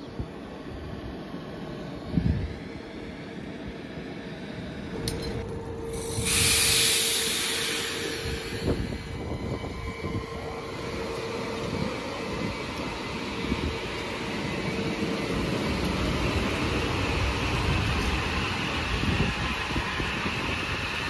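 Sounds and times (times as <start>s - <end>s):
train rumbling on rails: 0.0s - 21.0s
loud burst of hiss: 5.8s - 9.3s.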